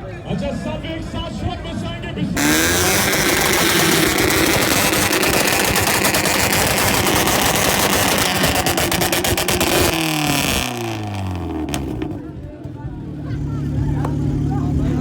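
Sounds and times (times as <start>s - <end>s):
rapid sharp pops: 2.4s - 10.7s
loud noise bed: 2.4s - 12.3s
engine revs falling: 2.4s - 12.5s.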